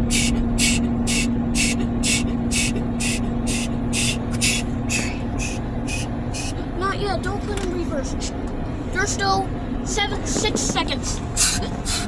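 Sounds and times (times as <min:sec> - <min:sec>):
car wash water jets hissing: 0:00.0 - 0:06.5, 0:09.9 - 0:12.0
steady machine hum: 0:00.0 - 0:12.0.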